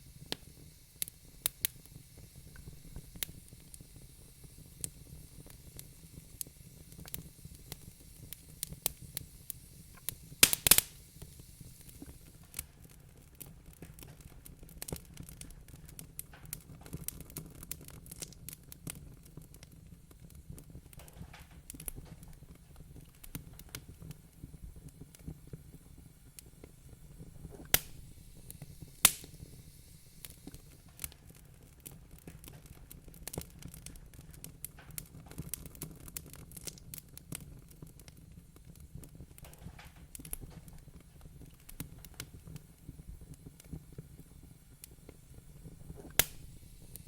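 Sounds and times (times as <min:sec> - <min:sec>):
loud pops of fire: 0:00.0 - 0:47.0
wood fire crackling: 0:00.0 - 0:47.0.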